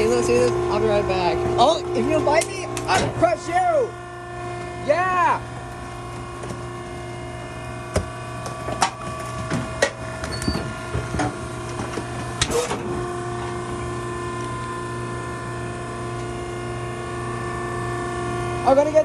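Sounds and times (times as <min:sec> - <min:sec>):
baler motor hum: 0:00.0 - 0:19.0.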